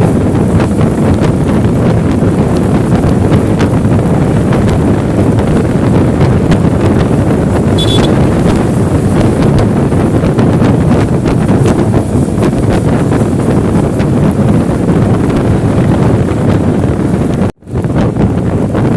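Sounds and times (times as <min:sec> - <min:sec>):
wind buffeting microphone: 0:00.0 - 0:18.9
high-pitched chirp: 0:07.8 - 0:08.2.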